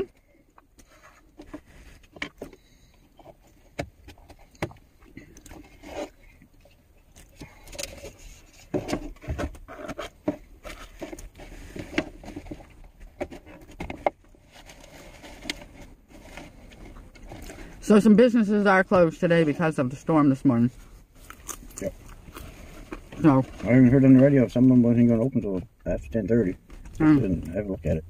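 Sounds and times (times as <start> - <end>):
handling noises in vehicle cab: 0.0 - 19.7.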